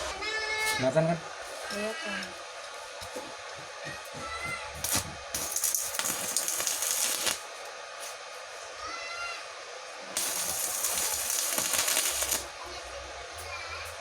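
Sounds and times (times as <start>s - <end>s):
welding arc crackling: 4.8s - 7.6s, 10.2s - 12.6s.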